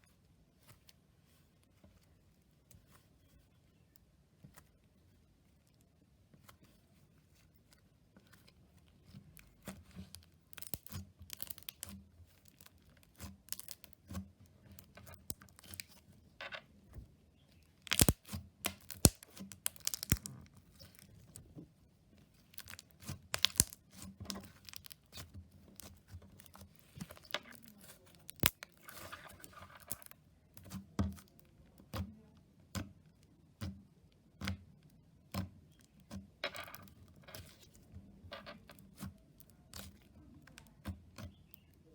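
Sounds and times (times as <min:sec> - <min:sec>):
slime squished by hand: 0:17.8 - 0:21.1, 0:22.5 - 0:28.9
sticky clicks and pops: 0:17.9 - 0:20.4, 0:22.6 - 0:25.0, 0:28.3 - 0:28.7.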